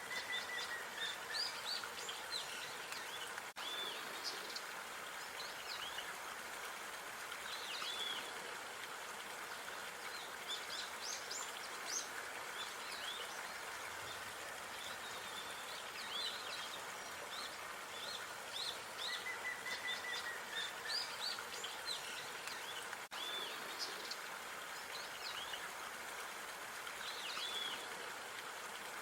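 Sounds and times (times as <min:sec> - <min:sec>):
steady outdoor hiss: 0:00.0 - 0:29.0.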